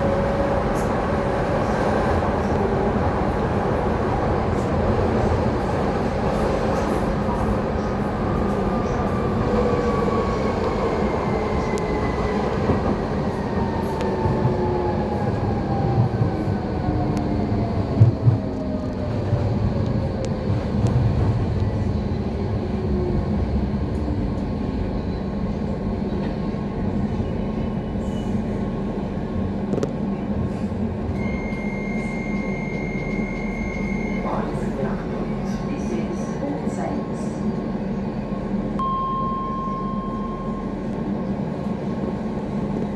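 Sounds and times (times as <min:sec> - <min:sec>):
train wheels rumbling on rail: 0:00.0 - 0:38.8
steady high beep: 0:38.8 - 0:40.9.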